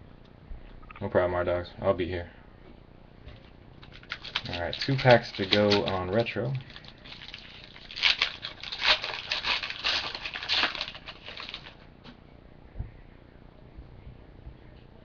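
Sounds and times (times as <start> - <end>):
foil wrapper tearing and crinkling: 3.8 - 11.8.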